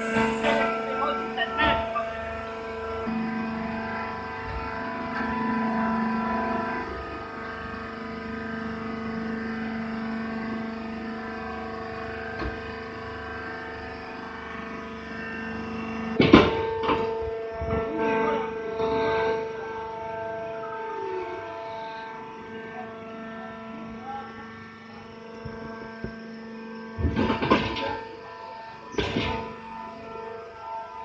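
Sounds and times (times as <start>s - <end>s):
baling machine humming: 0.0s - 31.0s.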